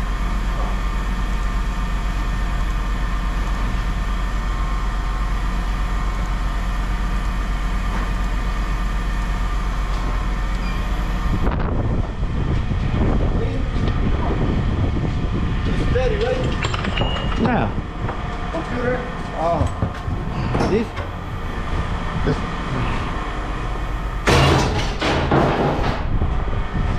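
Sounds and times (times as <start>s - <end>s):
vehicle engine idling: 0.0s - 16.2s, 17.7s - 24.5s
knocks and rattles: 16.0s - 18.7s, 24.2s - 26.3s.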